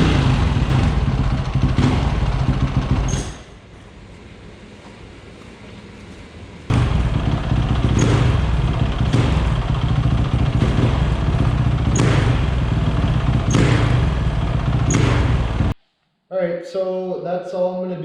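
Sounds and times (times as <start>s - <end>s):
motorcycle engine surging: 0.0s - 3.4s, 6.7s - 15.8s.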